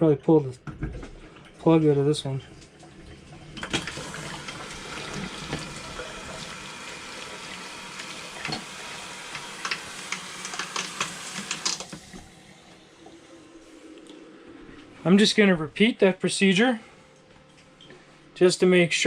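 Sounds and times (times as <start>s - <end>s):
water running from pipes: 1.4s - 13.3s.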